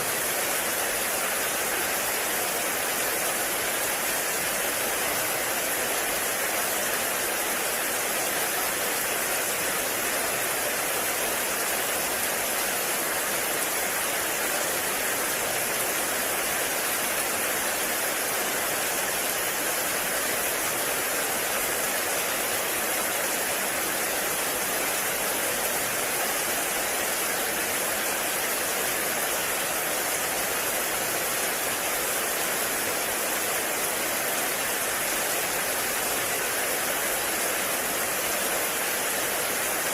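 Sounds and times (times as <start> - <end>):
heavy rain in a forest: 0.0 - 39.9.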